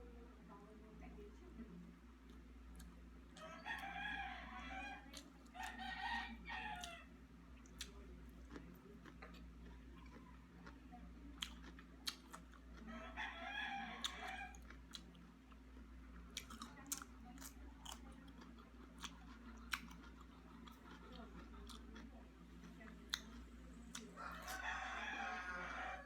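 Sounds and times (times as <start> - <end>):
steady low hum: 0.0 - 26.0
rooster crowing: 3.4 - 7.1, 12.8 - 14.7, 24.2 - 26.0
chewing and utensil clicks: 7.6 - 10.8, 11.4 - 12.8, 14.0 - 24.7.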